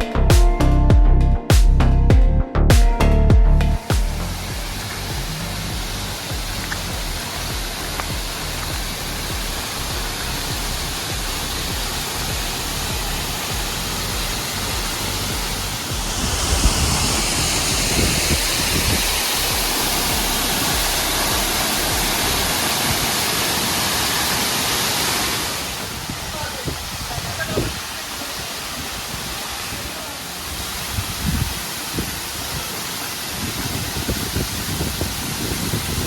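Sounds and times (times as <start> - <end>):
waterfall rushing: 3.6 - 36.0.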